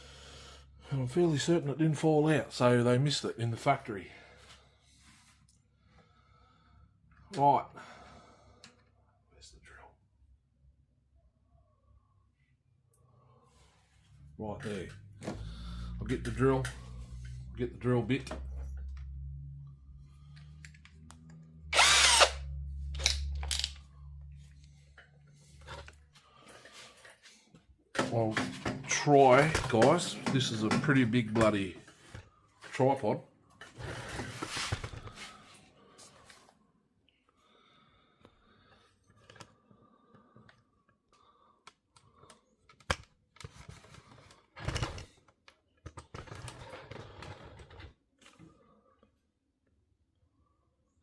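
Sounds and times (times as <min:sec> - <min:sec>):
electric drill bursts: 0:21.6 - 0:23.7.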